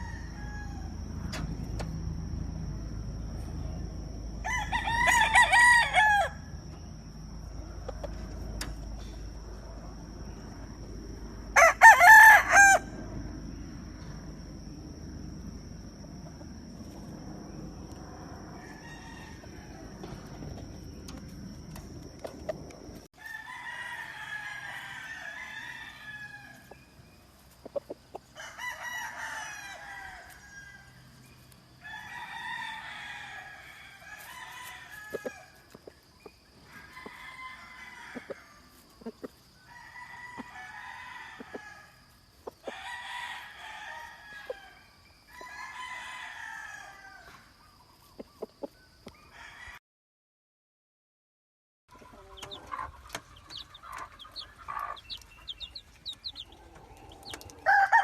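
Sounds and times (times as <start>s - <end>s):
low rumbling noise: 0.0s - 11.8s, 12.4s - 23.1s
roosters crowing: 0.0s - 47.8s, 48.6s - 49.8s, 51.9s - 58.0s.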